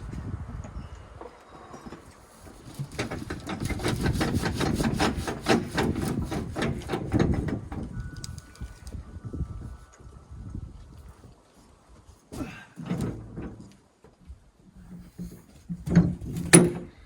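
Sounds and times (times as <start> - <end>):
sharp knocking or scraping strokes: 2.7 - 7.6.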